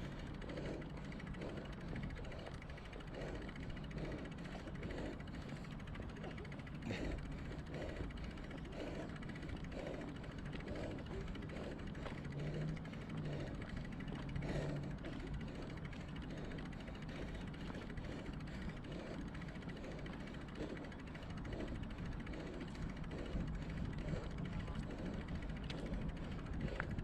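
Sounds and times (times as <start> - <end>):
bicycle road rumble: 0.0 - 27.0
low hum: 0.0 - 27.0.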